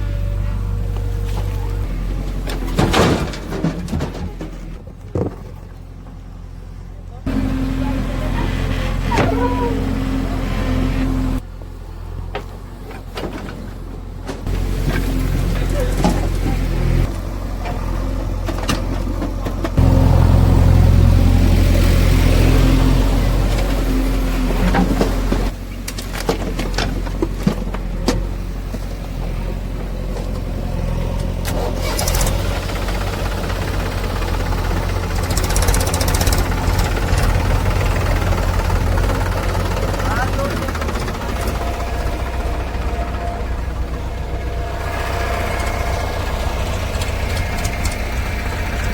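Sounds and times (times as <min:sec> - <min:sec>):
heavy diesel engine revving: 0:07.2 - 0:11.5, 0:19.6 - 0:25.6, 0:29.3 - 0:48.9.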